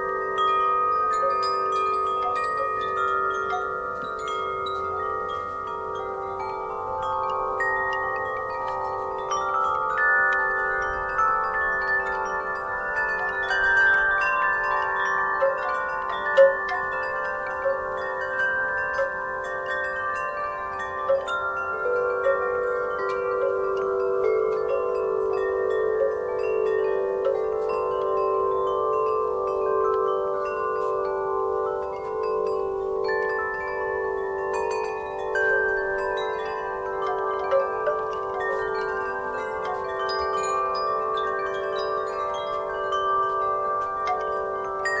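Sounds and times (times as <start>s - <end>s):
wind chimes ringing: 0.0s - 45.0s.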